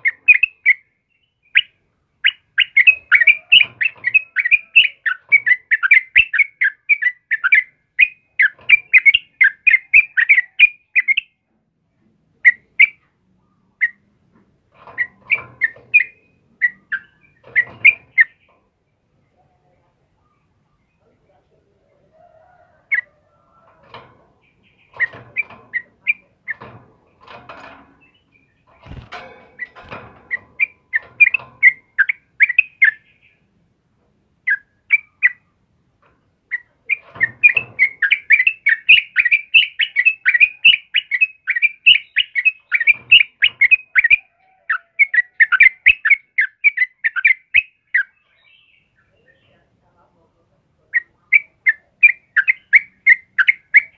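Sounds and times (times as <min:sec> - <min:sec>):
bird chattering calls: 0:01.5 - 0:11.4, 0:14.9 - 0:18.5, 0:24.4 - 0:26.7, 0:29.6 - 0:33.4, 0:36.5 - 0:48.5, 0:50.9 - 0:53.9.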